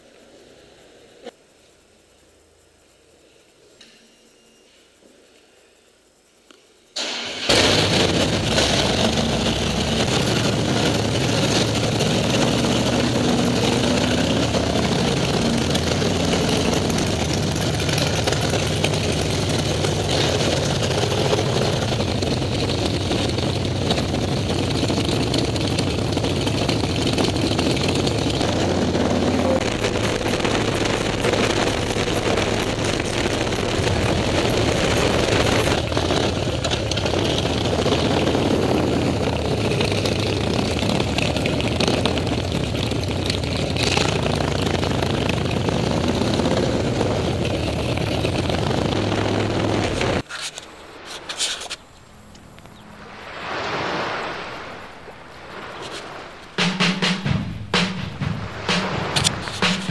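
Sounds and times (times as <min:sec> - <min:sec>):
motorcycle engines running: 0:07.5 - 0:50.3.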